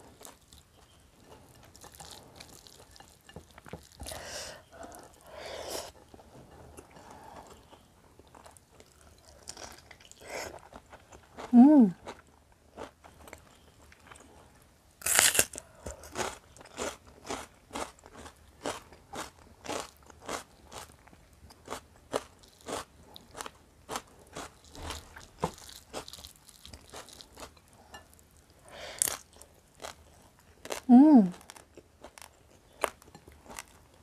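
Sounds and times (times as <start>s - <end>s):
person crunching food: 15.0s - 34.0s.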